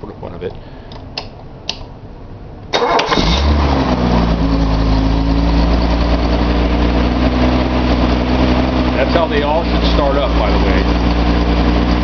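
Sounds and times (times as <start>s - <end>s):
car engine starting and idling: 2.7s - 12.0s.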